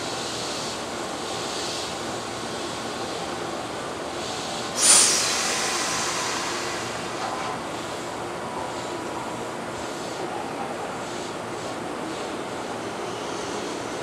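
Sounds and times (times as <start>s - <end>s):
electric trains moving: 0.0s - 14.0s
sudden loud hiss: 4.2s - 9.0s.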